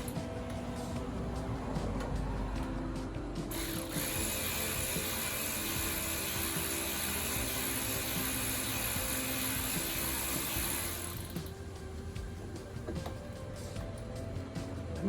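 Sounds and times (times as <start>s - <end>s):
power tool whirring: 3.5s - 11.6s.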